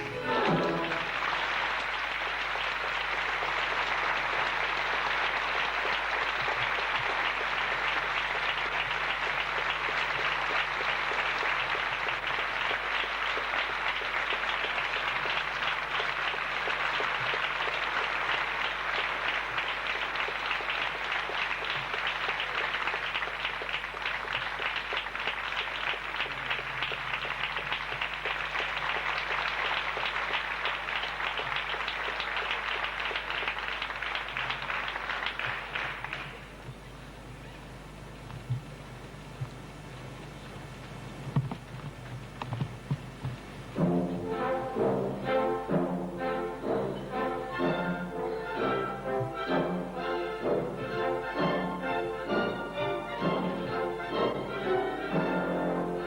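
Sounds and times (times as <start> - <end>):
audience applauding: 0.0 - 36.9.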